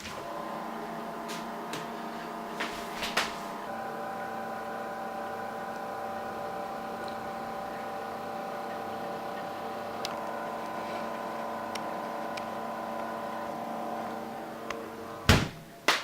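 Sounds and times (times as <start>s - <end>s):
fridge humming: 0.0s - 15.9s.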